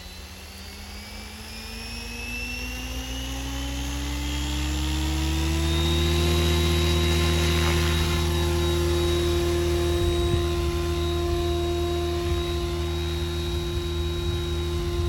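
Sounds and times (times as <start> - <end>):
rc helicopter motor whine: 0.0 - 15.0.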